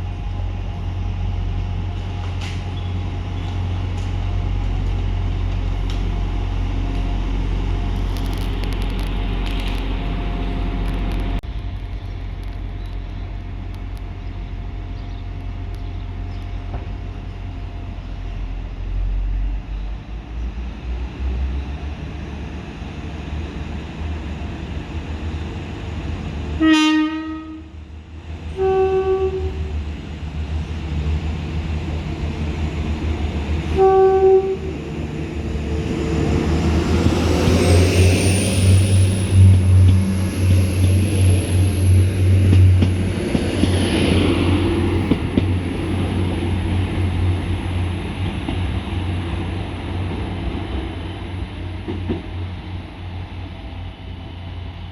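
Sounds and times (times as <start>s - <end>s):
train engine rumble: 0.0s - 54.9s
train horn blasts: 26.6s - 27.8s, 28.5s - 29.8s, 33.7s - 34.8s
rising whine: 34.6s - 47.9s.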